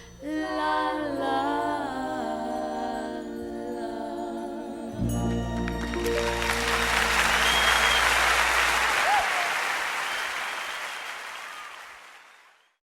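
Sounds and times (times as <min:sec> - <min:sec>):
low held musical note: 0:05.0 - 0:08.8
audience applauding: 0:05.4 - 0:12.7
whistles from audience: 0:05.9 - 0:12.8.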